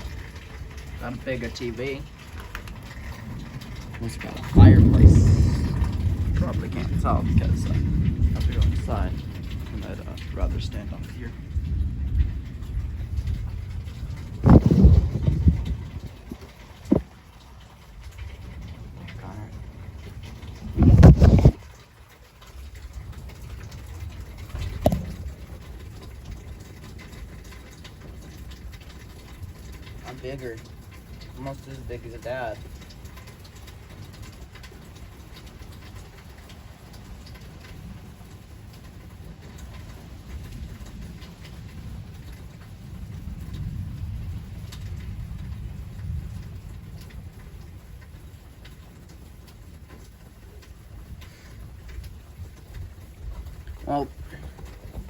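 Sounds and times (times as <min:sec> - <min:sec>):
rain falling: 0:00.0 - 0:55.0
low rumble: 0:03.2 - 0:17.1.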